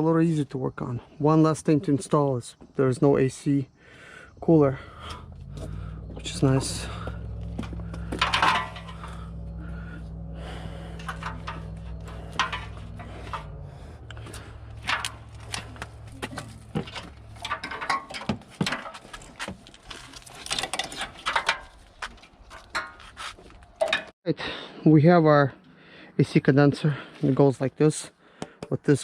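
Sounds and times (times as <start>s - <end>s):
steady low hum: 4.2s - 18.6s
car parts clicking and knocking: 5.1s - 24.1s.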